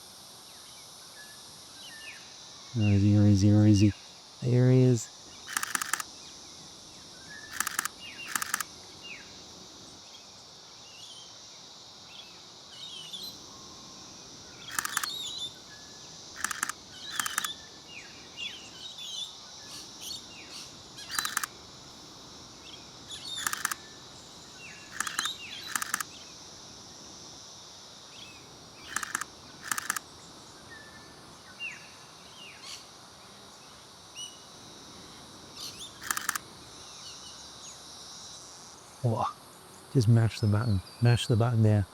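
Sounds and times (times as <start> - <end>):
high insect hiss: 0.0 - 41.9
camera shutter bursts: 5.5 - 6.1, 7.5 - 8.7, 14.7 - 15.3, 16.4 - 17.6, 21.1 - 21.5, 23.2 - 23.8, 24.9 - 26.1, 28.9 - 30.0, 36.0 - 36.4.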